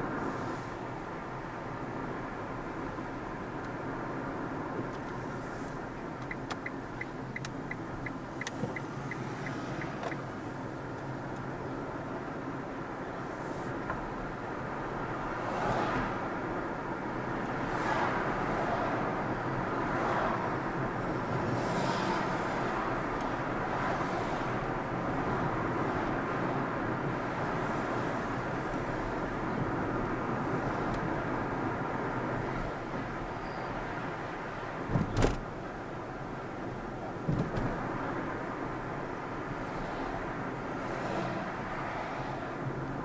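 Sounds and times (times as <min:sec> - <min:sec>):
car engine and tyre noise: 0:00.0 - 0:43.0.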